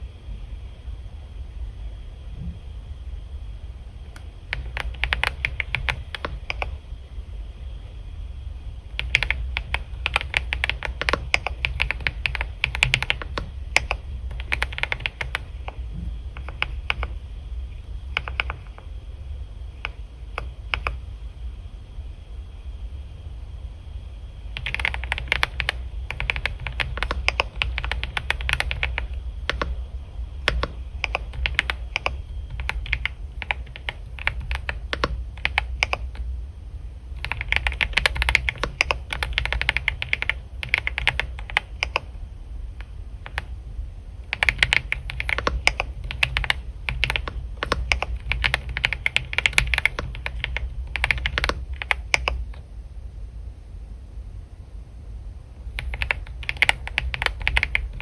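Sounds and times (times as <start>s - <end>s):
low hum: 0.0s - 58.0s
typing on keyboard: 4.1s - 6.8s, 8.9s - 17.2s, 18.0s - 18.9s, 19.7s - 21.0s, 24.5s - 36.3s, 37.2s - 42.2s, 42.8s - 43.6s, 44.2s - 52.7s, 55.7s - 58.0s.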